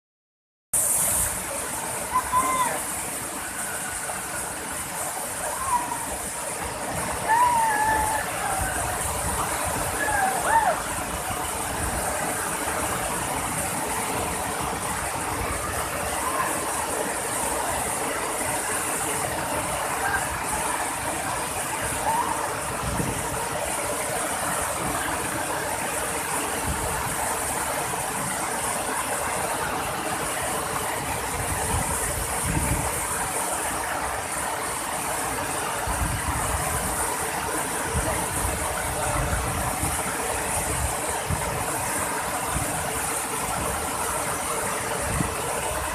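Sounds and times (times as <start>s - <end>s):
waterfall rushing: 0.8s - 45.9s.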